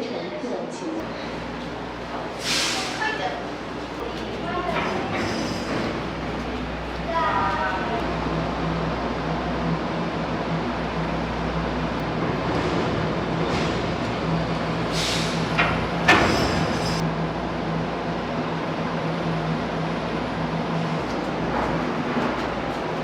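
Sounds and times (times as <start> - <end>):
ferry machinery hum: 1.0 - 23.0
brief hiss: 2.4 - 3.0.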